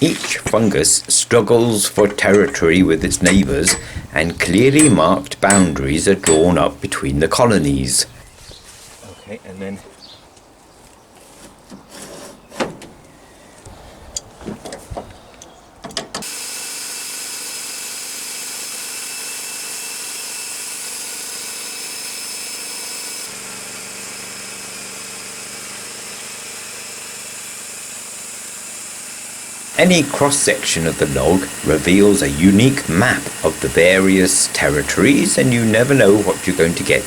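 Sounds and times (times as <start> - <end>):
bandsaw mill drone: 0.0 - 8.2, 16.2 - 37.0
bandsaw high whine: 0.0 - 8.3, 16.2 - 37.0
knocks and clatter: 1.7 - 7.0.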